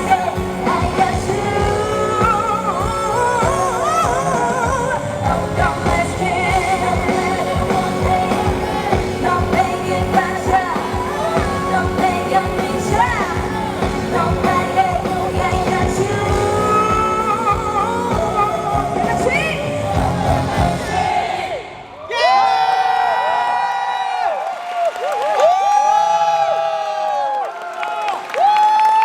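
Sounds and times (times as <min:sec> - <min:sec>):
woman singing live: 0:00.0 - 0:21.8
amplified band backing track: 0:00.0 - 0:22.0.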